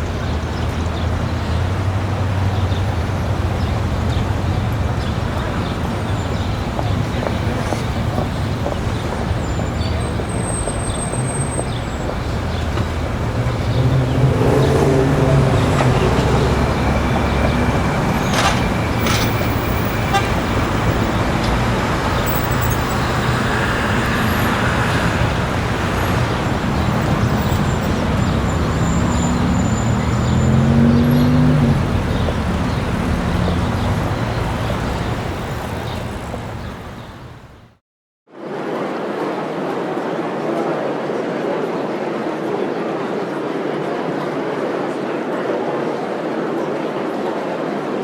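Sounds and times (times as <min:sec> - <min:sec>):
passing traffic: 0:00.0 - 0:37.8
car horn tooting: 0:15.0 - 0:23.4.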